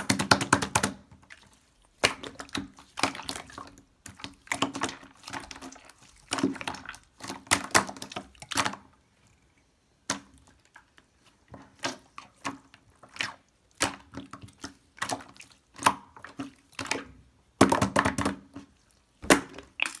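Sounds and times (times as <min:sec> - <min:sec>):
slime squeezed by hand: 0:19.2 - 0:20.0.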